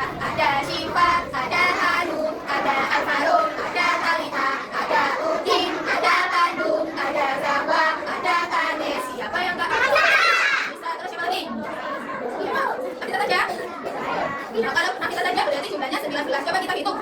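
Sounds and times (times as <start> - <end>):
children singing together: 0.0 - 10.8.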